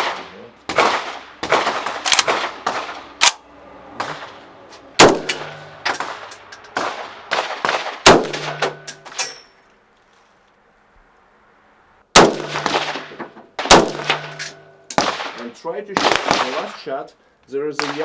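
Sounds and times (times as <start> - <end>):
gunshots: 0.0 - 3.4, 5.0 - 9.2, 12.2 - 16.8, 17.8 - 18.0
loud close rifle shots: 0.0 - 3.4, 5.0 - 9.3, 12.1 - 16.9, 17.8 - 18.0.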